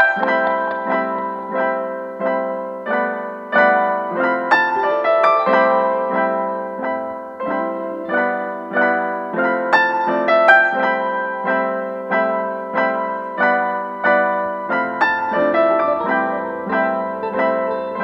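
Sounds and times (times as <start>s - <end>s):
piano notes and chords: 0.0s - 18.0s.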